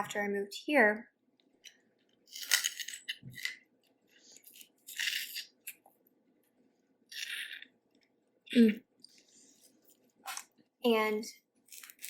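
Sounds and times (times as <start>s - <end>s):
crab shell cracking: 2.2s - 3.7s.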